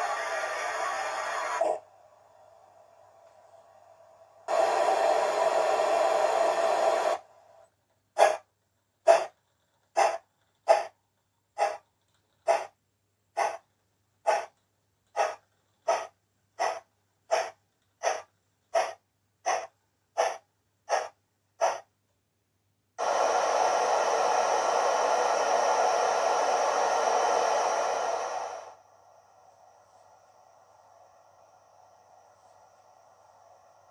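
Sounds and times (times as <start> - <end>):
steam hiss from small speaker: 0.0 - 1.8, 4.4 - 7.3, 23.0 - 33.9
steam exhaust chuffs: 0.0 - 7.6, 15.2 - 21.9, 23.0 - 33.9.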